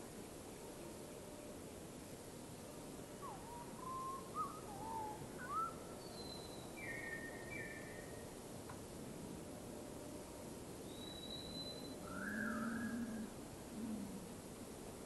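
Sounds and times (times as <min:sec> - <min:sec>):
steady background hiss: 0:00.0 - 0:15.0
birdsong whistles: 0:03.2 - 0:08.2, 0:10.9 - 0:13.1.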